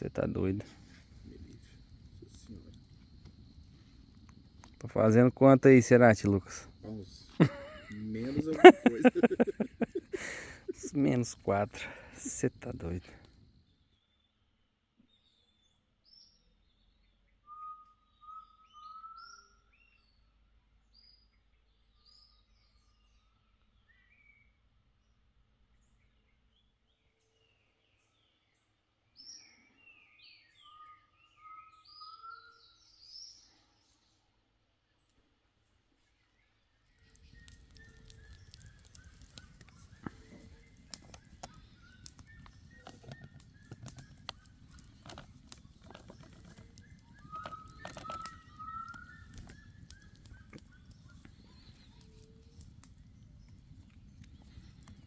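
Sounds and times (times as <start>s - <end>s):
birds calling faintly: 0.0s - 55.0s
birds whistling calls: 6.9s - 11.2s, 37.0s - 55.0s
bird chirps and falling whistles: 17.4s - 20.1s, 46.5s - 52.7s
sharp clicks: 37.0s - 55.0s.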